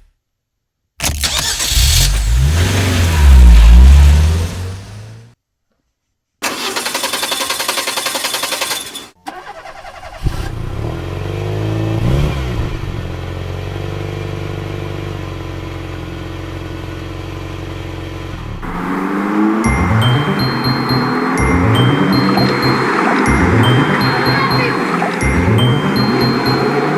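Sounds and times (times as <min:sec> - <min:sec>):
engine cranking and idling: 0:01.0 - 0:05.3, 0:06.4 - 0:10.7.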